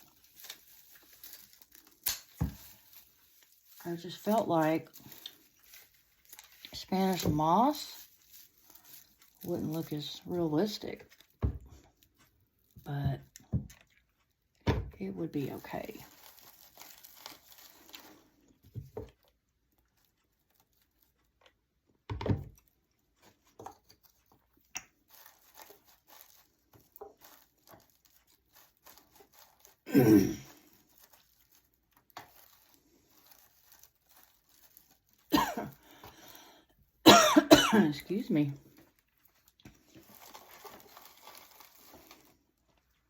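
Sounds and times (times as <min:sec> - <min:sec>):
dry hay crinkling and tearing: 0:00.0 - 0:11.3, 0:15.4 - 0:18.5, 0:25.0 - 0:36.4, 0:37.9 - 0:43.0.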